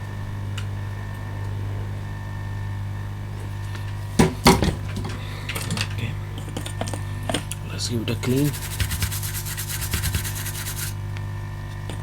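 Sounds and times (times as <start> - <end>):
low electrical hum: 0.0 - 12.0
small metal tools clattering: 3.8 - 7.4.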